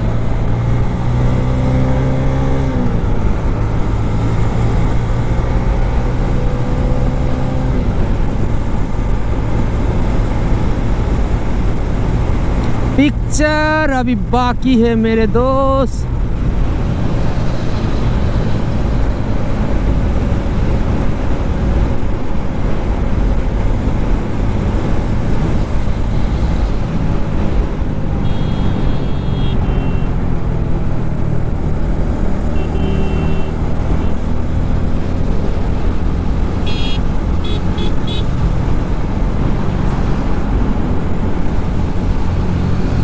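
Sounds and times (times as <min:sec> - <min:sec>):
motorcycle riding at speed: 0:00.0 - 0:43.0
short horn toots: 0:28.2 - 0:30.2, 0:32.6 - 0:34.2.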